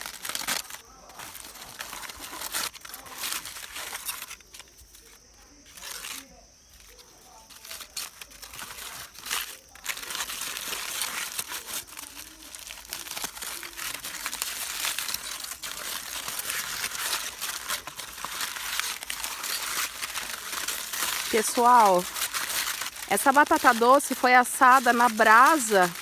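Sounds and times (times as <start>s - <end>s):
aluminium foil crinkling: 0.0s - 26.0s.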